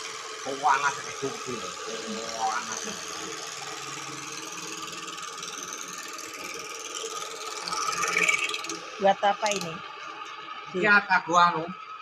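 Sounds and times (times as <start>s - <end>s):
small motor running: 0.0s - 12.0s.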